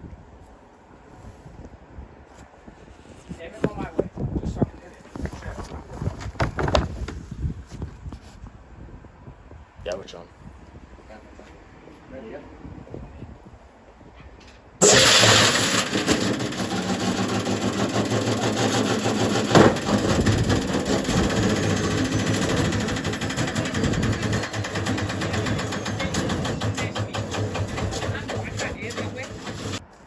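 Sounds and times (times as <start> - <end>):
washing machine banging and rattling: 6.2 - 7.2, 14.8 - 29.8.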